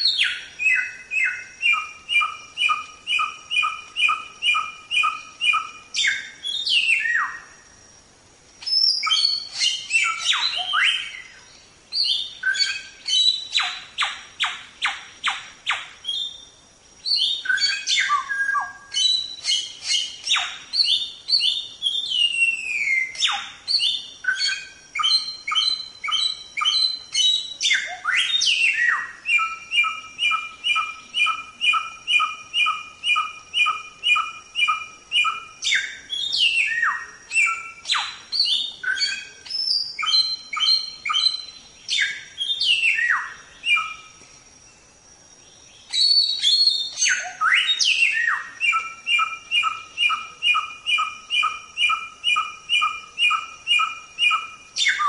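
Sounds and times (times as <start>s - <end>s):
songbird repeated chirps: 0.0s - 7.7s, 8.6s - 55.0s
bird downward-sweeping whistles: 8.6s - 16.4s, 17.0s - 44.1s, 45.9s - 55.0s.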